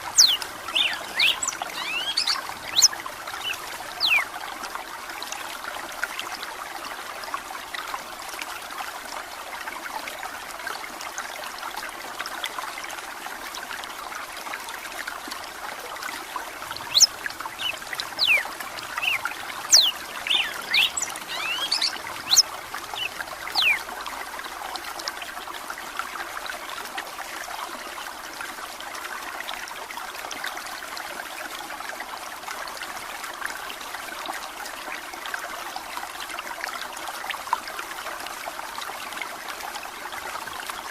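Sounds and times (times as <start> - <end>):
running water trickling: 0.0 - 40.9
bird singing whistled notes: 0.1 - 4.2, 16.9 - 18.4, 19.0 - 23.8.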